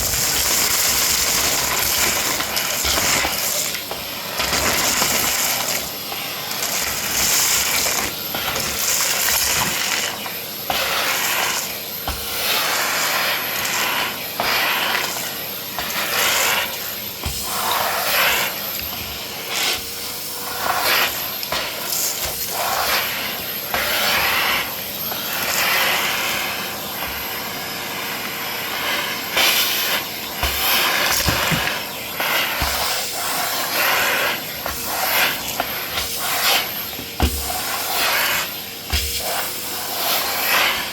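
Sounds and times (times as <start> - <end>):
debris rattling in vacuum: 0.0 - 10.2
vacuum cleaner running: 0.0 - 40.9.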